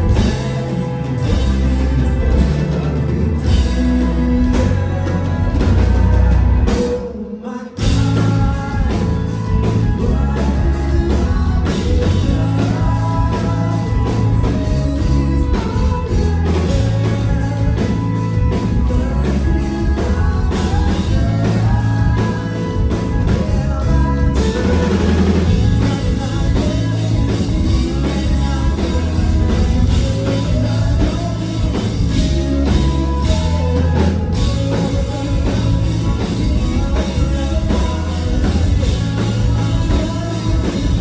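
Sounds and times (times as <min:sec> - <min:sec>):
rock band music: 0:00.0 - 0:41.0.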